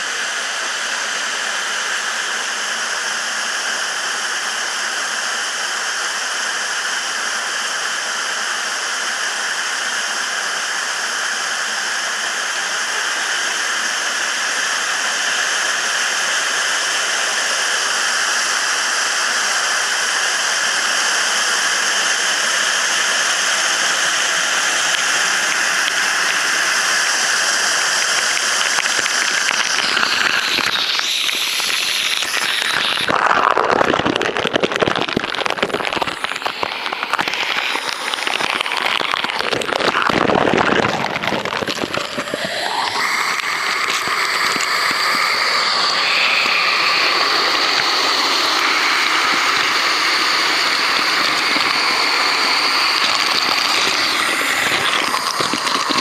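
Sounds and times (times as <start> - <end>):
waterfall pouring: 11.6 - 56.0.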